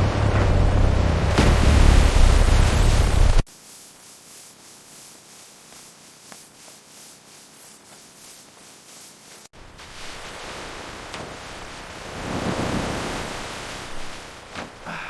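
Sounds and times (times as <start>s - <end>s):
rushing water with low rumble: 0.0s - 3.5s, 9.6s - 15.0s
faint steady hiss: 3.3s - 14.9s.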